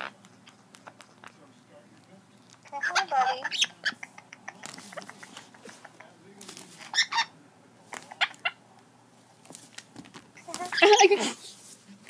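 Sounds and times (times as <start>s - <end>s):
parrot squawking and chirping: 2.6s - 5.3s, 6.8s - 7.4s, 8.1s - 8.6s, 10.4s - 11.3s.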